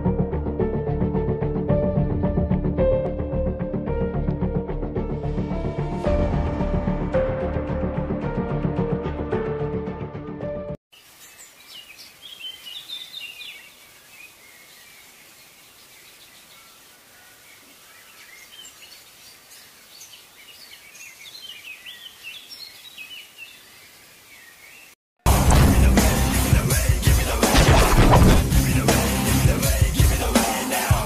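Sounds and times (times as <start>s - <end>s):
faint outdoor background hiss: 10.9s - 25.0s
birds chirping: 11.0s - 25.0s.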